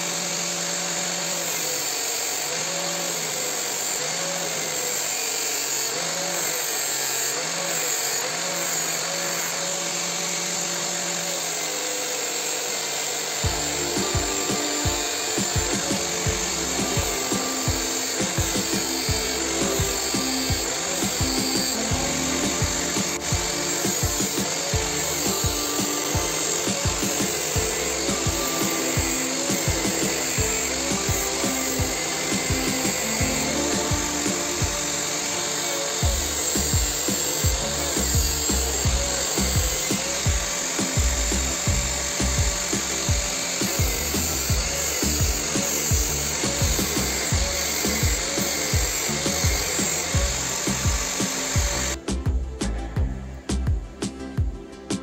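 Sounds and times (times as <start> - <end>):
angle grinder grinding metal: 0.0 - 52.2
background music with steady beat: 13.3 - 55.0.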